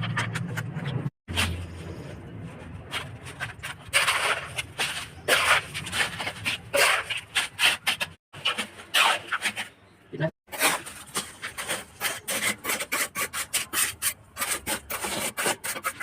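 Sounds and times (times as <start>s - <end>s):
hand tool rasping on plastic pipe: 10.5s - 16.0s.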